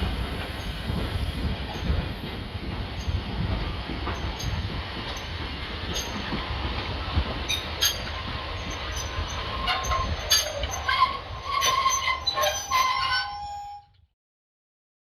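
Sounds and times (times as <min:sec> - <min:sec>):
train rumbling on track: 0:00.0 - 0:13.8
wheels squealing: 0:07.5 - 0:13.8.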